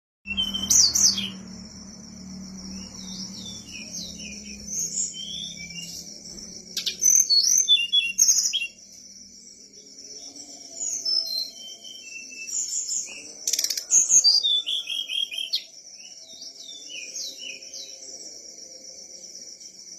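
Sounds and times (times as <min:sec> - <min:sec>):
songbird chirping and whistling: 0:00.3 - 0:01.5, 0:02.7 - 0:08.9, 0:10.1 - 0:18.0.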